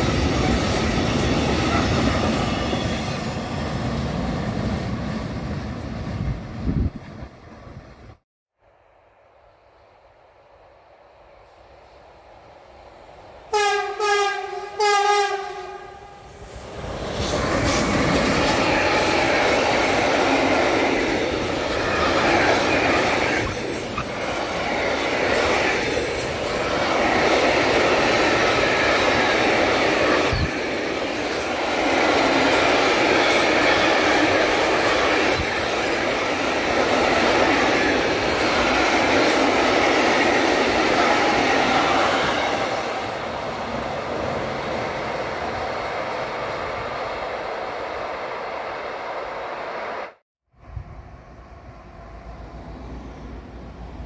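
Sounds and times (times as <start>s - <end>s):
freight train wheels rumbling: 0.0s - 8.2s, 12.0s - 49.4s
locomotive horn blasts: 13.5s - 16.2s.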